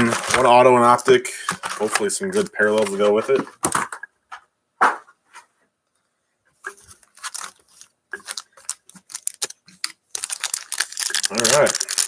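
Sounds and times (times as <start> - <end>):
foil packs crinkling: 0.0 - 3.8, 6.8 - 12.0.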